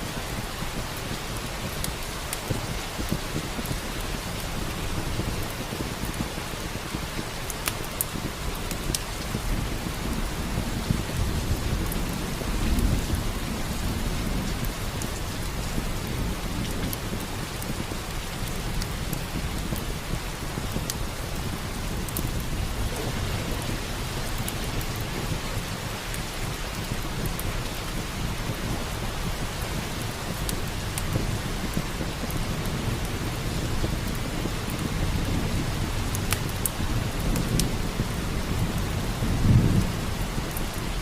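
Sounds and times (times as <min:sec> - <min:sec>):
steady rain: 0:00.0 - 0:41.0
wood fire crackling: 0:00.0 - 0:41.0
low thunder rumbling: 0:08.1 - 0:41.0.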